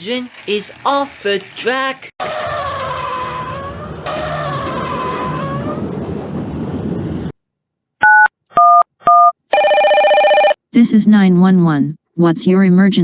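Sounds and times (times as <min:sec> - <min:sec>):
whirring scraping noise: 0:00.0 - 0:07.3
telephone keypad tones: 0:08.0 - 0:10.6.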